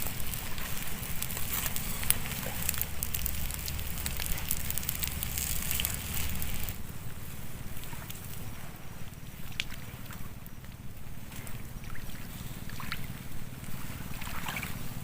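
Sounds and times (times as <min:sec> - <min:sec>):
campfire crackling and popping: 0:00.0 - 0:11.8
low rumble: 0:00.0 - 0:15.0.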